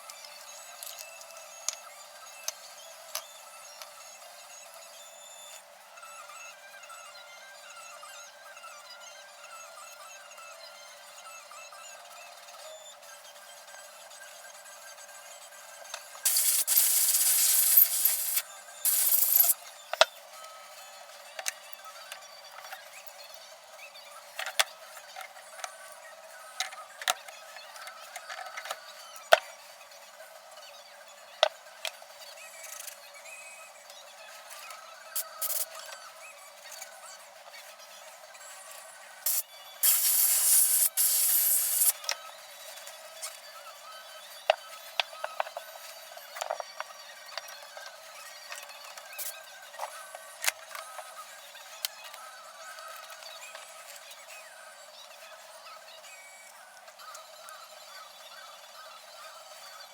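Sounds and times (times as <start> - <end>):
tools clicking and clinking: 16.3 - 19.6.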